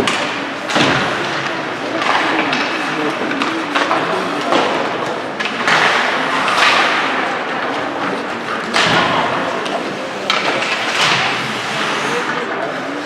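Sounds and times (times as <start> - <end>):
puck and sticks knocking boards: 0.0 - 12.6
skates hissing on ice: 11.0 - 12.4.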